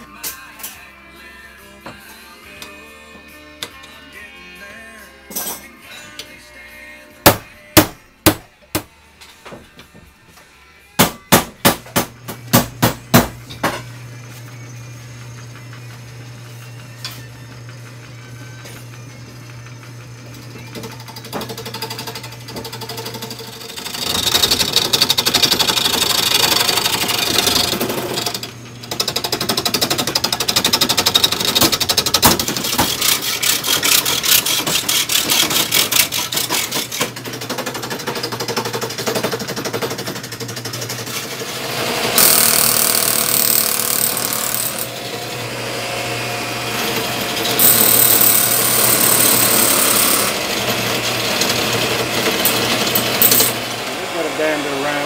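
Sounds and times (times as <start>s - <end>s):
turning tool rasping on wood: 32.5s - 37.0s.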